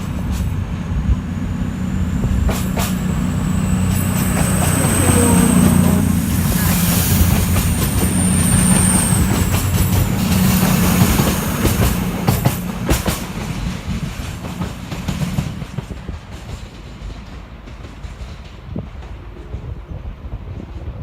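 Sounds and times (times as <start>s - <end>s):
high thin whine: 0.0s - 14.4s
train running past: 0.0s - 21.0s.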